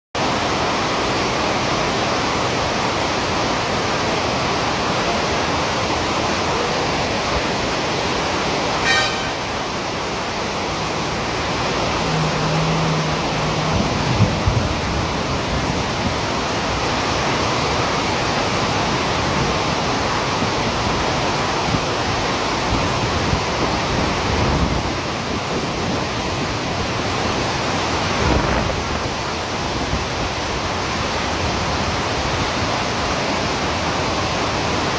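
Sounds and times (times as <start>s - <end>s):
heavy rain: 0.2s - 34.9s
passing road traffic: 7.1s - 23.3s.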